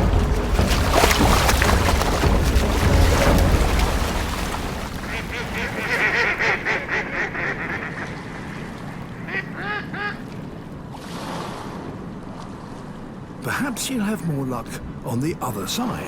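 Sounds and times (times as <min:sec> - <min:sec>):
ducks calling: 0:00.0 - 0:10.3.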